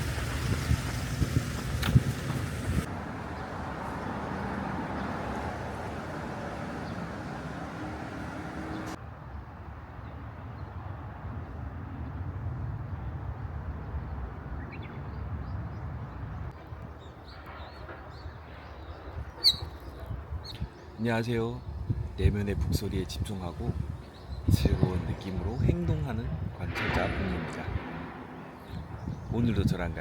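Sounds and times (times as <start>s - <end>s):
rush of wind: 0.0s - 30.0s
bird chirps: 17.3s - 21.0s
low rumble: 25.0s - 30.0s.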